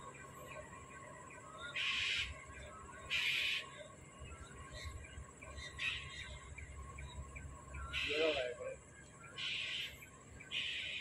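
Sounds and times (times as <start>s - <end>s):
faint bird chirping: 0.0s - 11.0s
bird harsh raspy calls: 1.6s - 4.0s, 4.7s - 7.2s, 7.8s - 11.0s.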